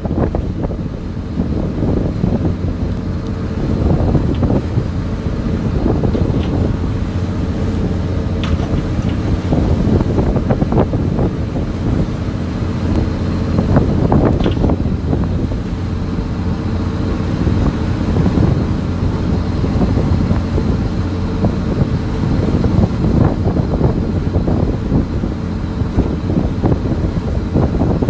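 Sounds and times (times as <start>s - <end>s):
boat engine running: 0.0s - 28.0s
wind buffeting microphone: 0.0s - 28.0s
knocks and clatters: 8.4s - 9.3s.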